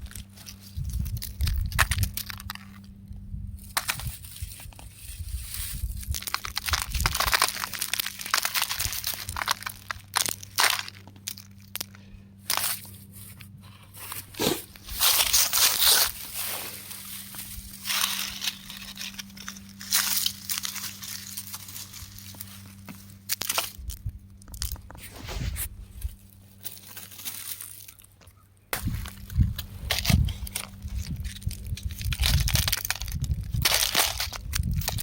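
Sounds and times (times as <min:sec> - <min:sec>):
rock crunching and crackling: 0:00.0 - 0:35.0.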